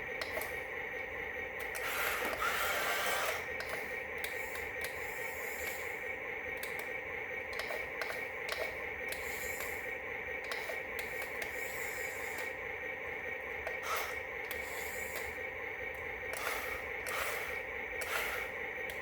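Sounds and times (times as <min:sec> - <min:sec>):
toy motor whirring: 0:01.7 - 0:05.9, 0:07.6 - 0:09.8, 0:13.7 - 0:15.4, 0:16.3 - 0:19.0.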